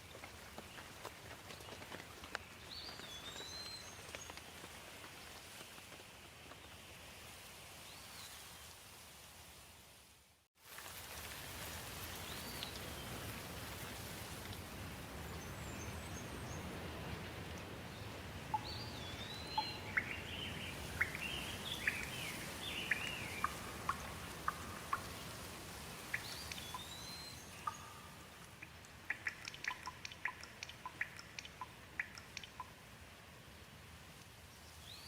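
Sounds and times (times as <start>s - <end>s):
steady rain: 0.0s - 35.0s
birds chirping: 15.3s - 32.7s
water drops ticking: 18.5s - 20.2s, 22.9s - 25.2s, 26.1s - 27.0s, 27.6s - 32.8s.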